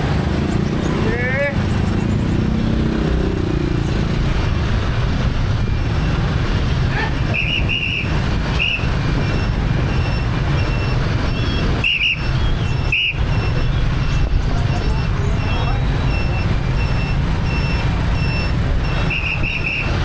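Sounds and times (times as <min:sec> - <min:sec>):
motorbike traffic rumble: 0:00.0 - 0:20.0
high-pitched whistle blasts: 0:11.4 - 0:13.2.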